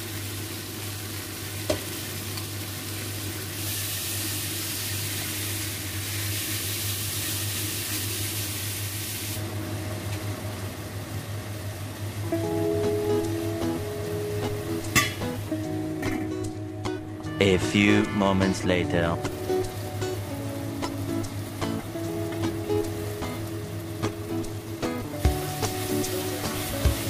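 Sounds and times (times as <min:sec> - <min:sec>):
meat sizzling in a saucepan: 0:00.0 - 0:09.5, 0:19.2 - 0:27.0.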